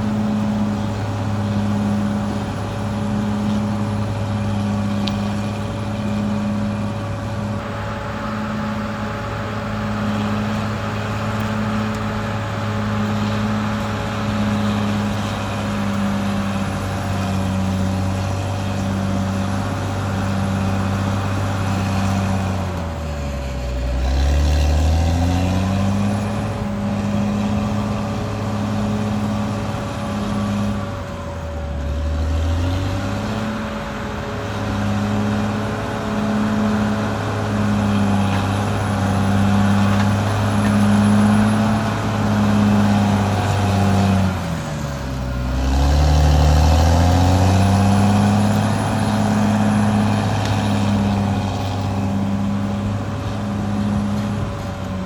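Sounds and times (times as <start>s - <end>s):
steady high whine: 0.0s - 24.3s
bulldozer diesel engine running: 0.0s - 55.0s.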